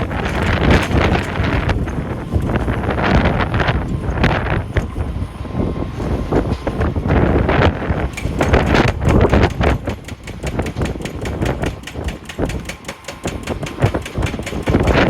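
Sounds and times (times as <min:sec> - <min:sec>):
rapid clattering knocks: 0:00.0 - 0:02.0, 0:08.1 - 0:15.0
wheel loader engine rumble: 0:00.0 - 0:15.0.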